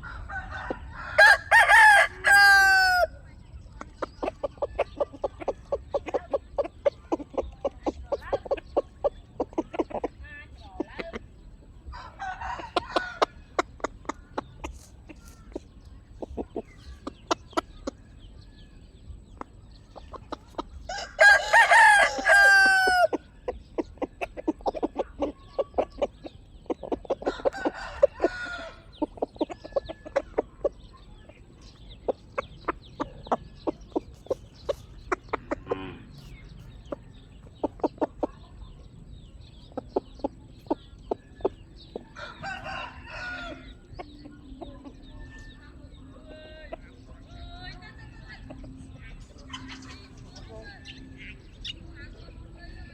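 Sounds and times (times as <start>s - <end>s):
rooster crowing: 0.0s - 3.2s, 20.9s - 23.1s, 27.5s - 28.8s, 42.2s - 43.7s
chickens clucking: 0.0s - 52.9s.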